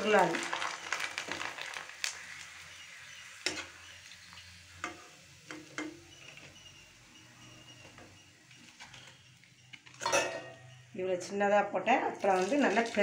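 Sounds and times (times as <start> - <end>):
papad sizzling in hot oil: 0.0 - 10.8, 12.2 - 13.0
ladle clinking against pan: 10.0 - 10.7.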